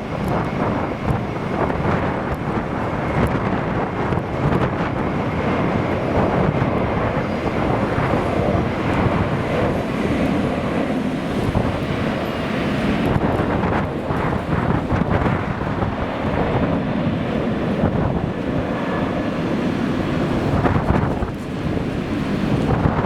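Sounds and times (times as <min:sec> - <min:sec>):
jet engines rumbling: 0:00.0 - 0:23.0
wind buffeting microphone: 0:00.0 - 0:23.0.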